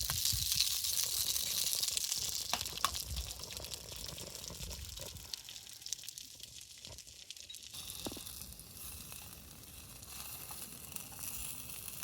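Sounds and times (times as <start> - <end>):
sharp crackles: 0.0 - 12.0
sizzling in a hot pan: 7.5 - 12.0.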